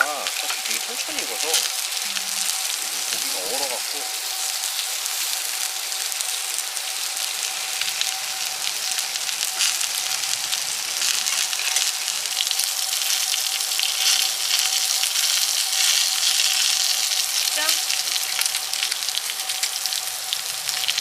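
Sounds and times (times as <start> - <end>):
meat sizzling on a griddle: 0.0 - 21.0.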